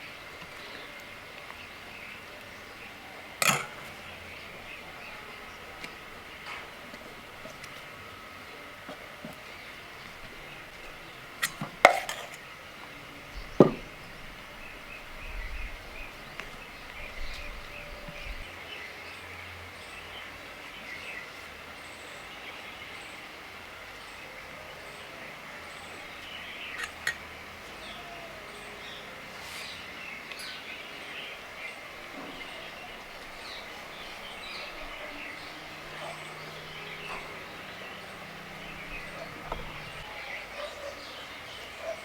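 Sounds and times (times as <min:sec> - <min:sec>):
sharp knocks: 0:13.6 - 0:13.9.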